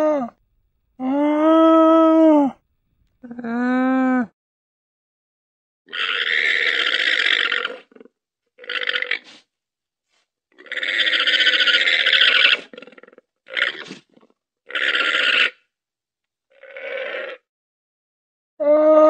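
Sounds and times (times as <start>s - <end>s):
llama rasping calls: 5.9s - 7.9s, 10.6s - 14.0s, 14.7s - 15.6s
llama pitched call: 10.6s - 12.9s, 14.7s - 15.6s.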